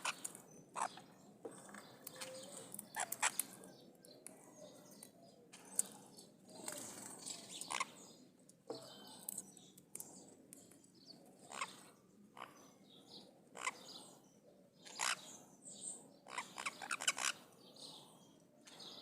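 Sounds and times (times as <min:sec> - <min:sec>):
parrots calling harshly: 0:13.6 - 0:13.8, 0:14.9 - 0:15.3, 0:16.3 - 0:17.4.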